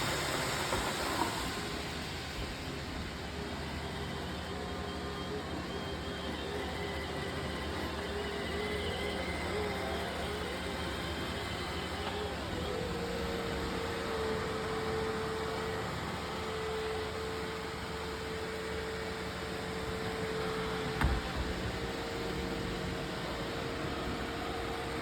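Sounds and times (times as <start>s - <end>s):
robot vacuum running: 0.0s - 25.0s.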